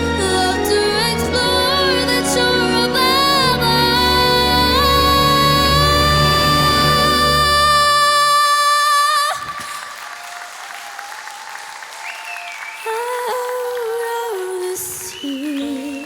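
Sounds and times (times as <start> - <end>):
backing music: 0.0 - 8.1
soft music: 0.0 - 8.3
girl singing a long note: 0.0 - 9.8
audience applause: 9.2 - 16.0.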